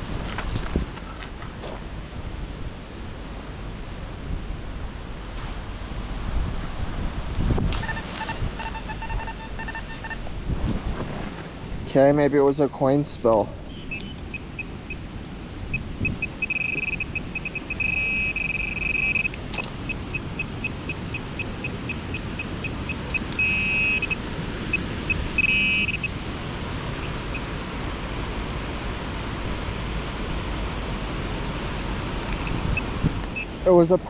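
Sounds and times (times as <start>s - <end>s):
wind rumbling on microphone: 0.0s - 12.2s, 13.2s - 34.0s
metal detector beeping: 7.8s - 10.3s, 13.9s - 15.0s, 15.7s - 24.2s, 25.1s - 26.2s, 26.9s - 27.5s, 32.2s - 33.6s.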